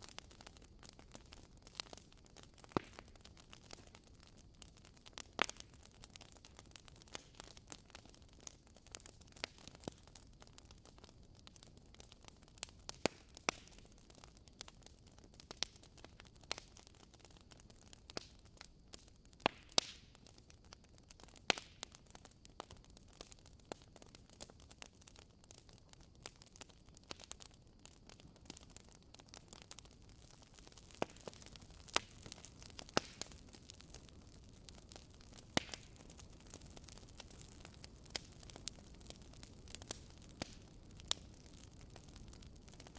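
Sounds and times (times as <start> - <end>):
faint steady hiss: 0.0 - 42.9
wood fire crackling: 0.0 - 42.9.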